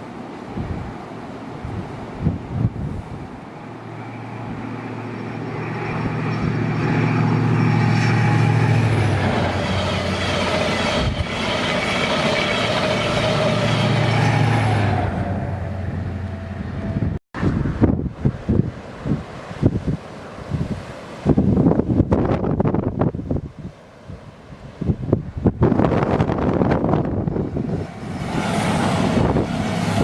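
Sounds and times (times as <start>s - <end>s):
train passing: 2.8s - 18.1s, 25.7s - 30.0s.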